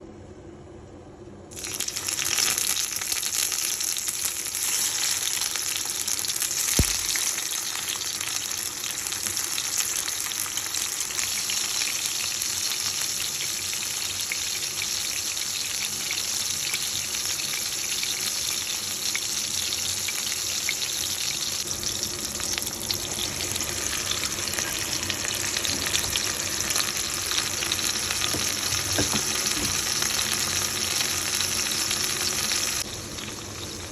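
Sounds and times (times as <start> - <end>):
food sizzling in a pan: 1.5 - 33.9
knock: 28.3 - 29.8.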